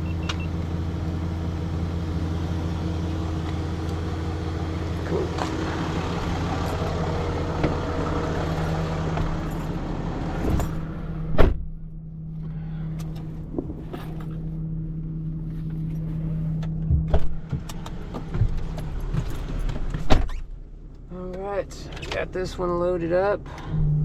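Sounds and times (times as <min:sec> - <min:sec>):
tow truck engine running: 0:00.0 - 0:24.0
loud clunk: 0:10.4 - 0:11.9.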